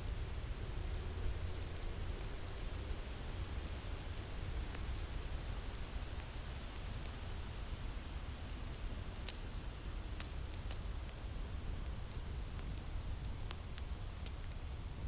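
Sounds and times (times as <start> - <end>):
fire crackling: 0.0 - 15.0
burning wood popping: 8.1 - 15.0.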